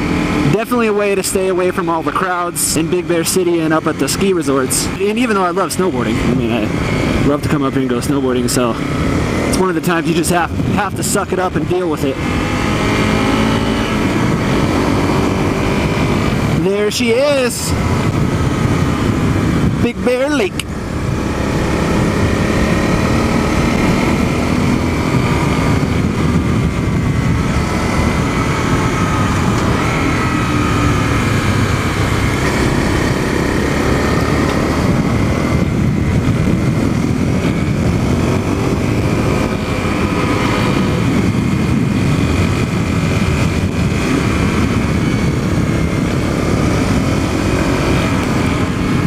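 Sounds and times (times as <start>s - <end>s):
heavy rushing noise: 0.0s - 49.0s
motorcycle engine running: 0.0s - 49.0s.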